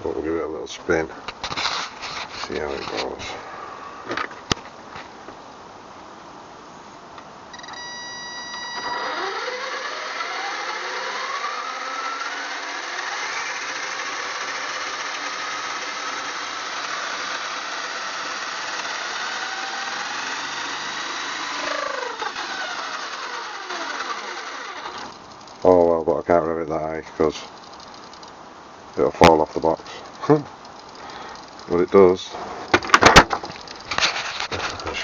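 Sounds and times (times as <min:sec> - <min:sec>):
electric motor whining through gears: 0:07.8 - 0:25.8.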